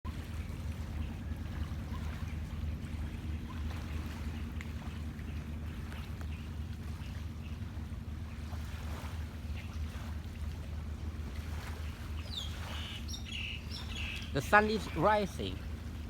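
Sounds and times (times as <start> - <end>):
sea waves washing on shore: 0.1 - 16.0
steady low rumble: 0.1 - 16.0
faint bird chirps: 12.2 - 15.2.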